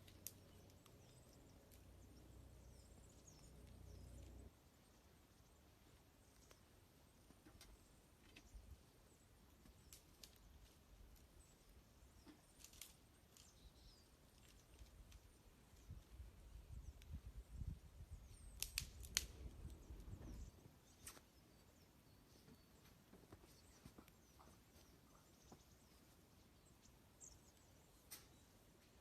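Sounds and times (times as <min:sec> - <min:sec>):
wood fire crackling: 0:00.0 - 0:04.5, 0:09.5 - 0:17.2, 0:18.2 - 0:21.2
small birds chirping: 0:00.0 - 0:29.0
fire pops: 0:18.5 - 0:21.2.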